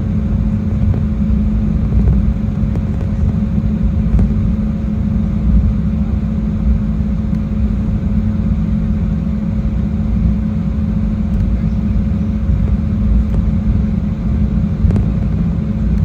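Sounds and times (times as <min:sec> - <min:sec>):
faint steady hum: 0:00.0 - 0:16.0
jet engine and airflow rumble: 0:00.0 - 0:16.0.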